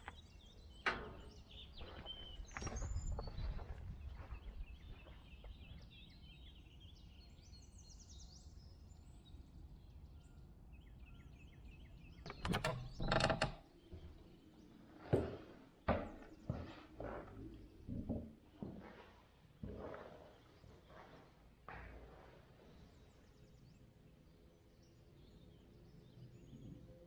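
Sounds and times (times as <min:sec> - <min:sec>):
songbirds trilling: 0:00.0 - 0:15.5.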